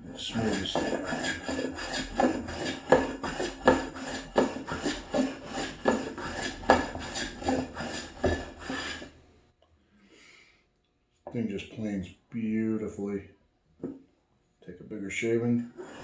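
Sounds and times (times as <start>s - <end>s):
hand plane shaving wood: 0.0s - 9.2s, 15.8s - 16.0s.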